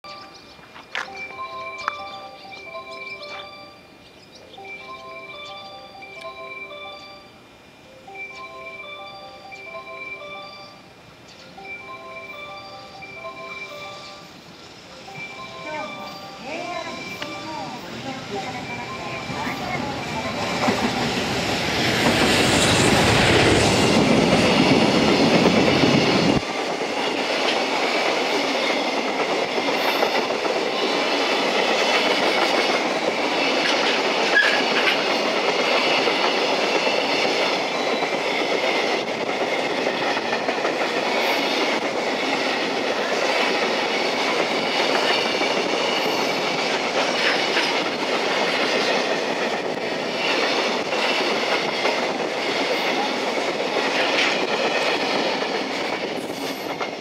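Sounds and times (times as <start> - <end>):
wagons rolling with wheel clacks: 15.2 - 57.0.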